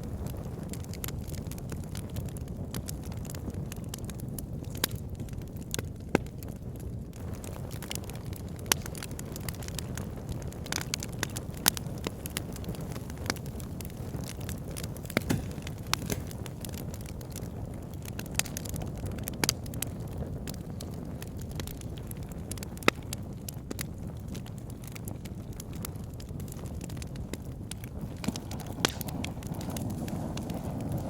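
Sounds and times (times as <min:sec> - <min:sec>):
wood fire crackling: 0:00.0 - 0:31.0
logs popping and snapping: 0:10.7 - 0:17.4, 0:27.7 - 0:30.9.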